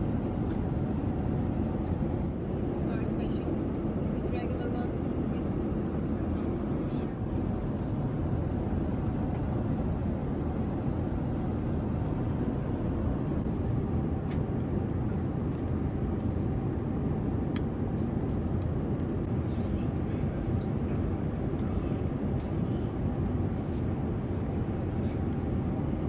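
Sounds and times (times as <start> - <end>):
faint steady hum: 0.0 - 13.6
airliner cabin rumble: 0.0 - 26.0.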